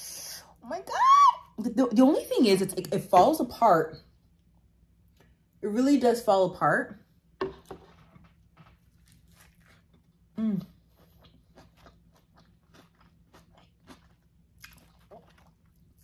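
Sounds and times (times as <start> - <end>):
wet chewing clicks and smacks: 11.2 - 16.0.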